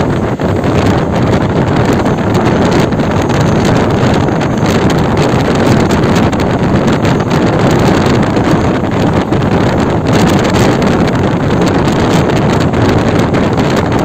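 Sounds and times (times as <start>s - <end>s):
moving train: 0.0s - 14.0s
wind buffeting microphone: 0.0s - 14.0s.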